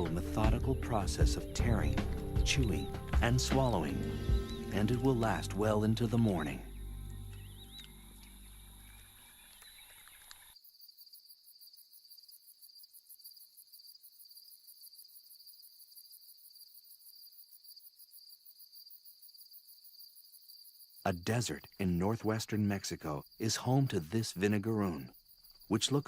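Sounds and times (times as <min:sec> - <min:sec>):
low background music: 0:00.0 - 0:08.9
crickets trilling: 0:00.0 - 0:26.0.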